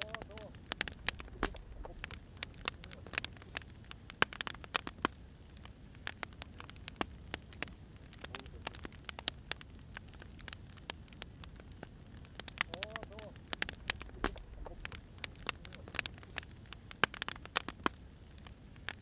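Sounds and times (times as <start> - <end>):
firewood crackling: 0.0 - 19.0
low rush of fire: 0.0 - 19.0.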